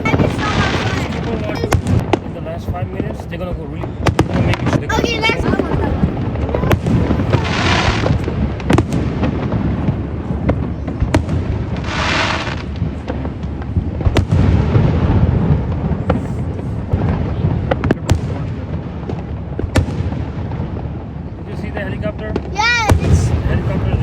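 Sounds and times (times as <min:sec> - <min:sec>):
fireworks booming and cracking: 0:00.0 - 0:24.0.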